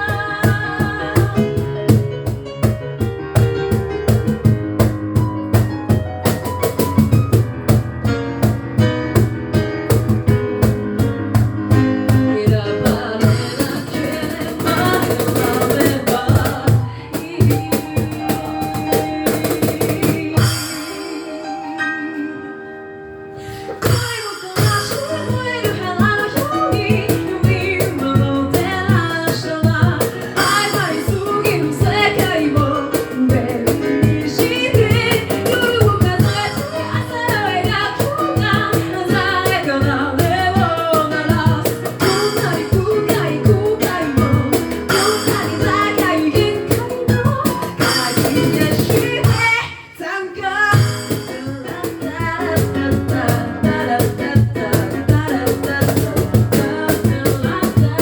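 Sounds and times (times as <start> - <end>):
a cappella group singing: 0.0 - 1.7, 30.1 - 44.2, 51.2 - 58.0
vocal percussion beat: 0.0 - 8.0, 10.3 - 21.6, 23.8 - 49.7, 50.7 - 58.0.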